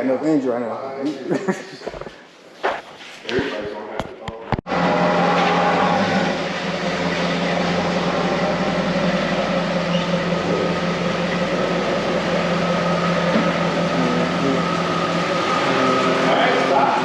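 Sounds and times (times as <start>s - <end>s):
steady mechanical hum: 4.7s - 17.0s.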